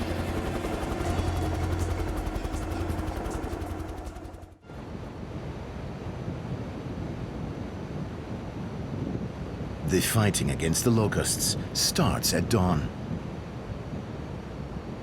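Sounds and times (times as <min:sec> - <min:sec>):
helicopter rotor beating: 0:00.0 - 0:04.6
rushing wind noise: 0:04.7 - 0:15.0.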